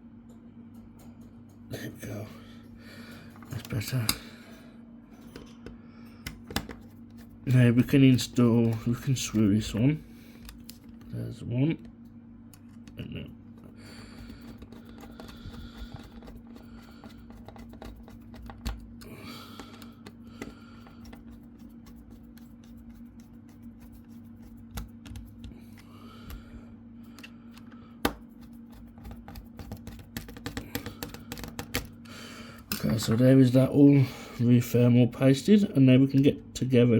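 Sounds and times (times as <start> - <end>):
steady low hum: 0.0 - 36.9
screwdriver clicks and taps: 24.7 - 25.5, 29.0 - 31.9.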